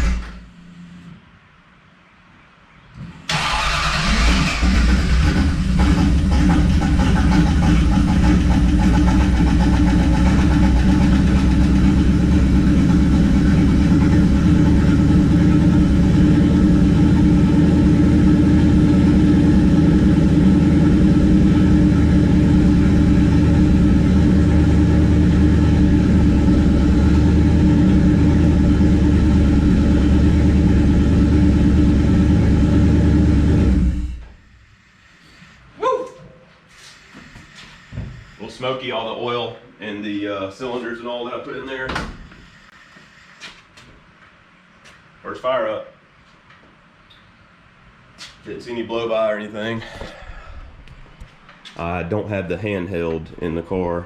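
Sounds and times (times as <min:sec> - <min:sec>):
car engine running: 0:03.3 - 0:35.4.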